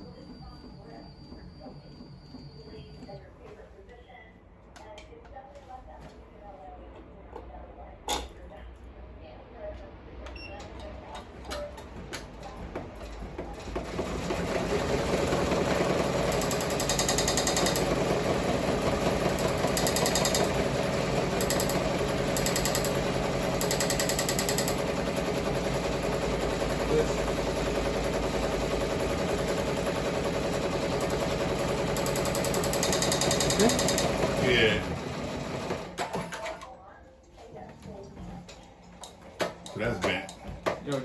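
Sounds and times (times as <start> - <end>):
embroidery machine needle clatter: 13.0 - 36.6.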